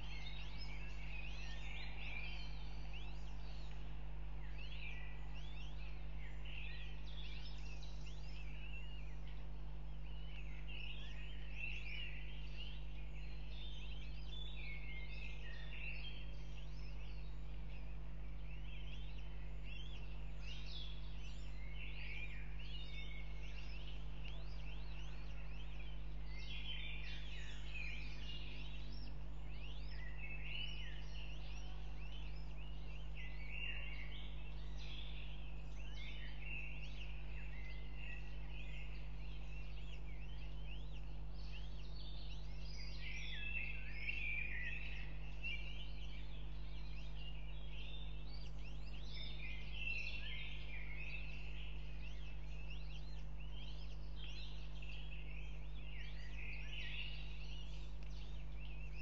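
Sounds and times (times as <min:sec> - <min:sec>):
bird chirps: 0:00.0 - 0:59.0.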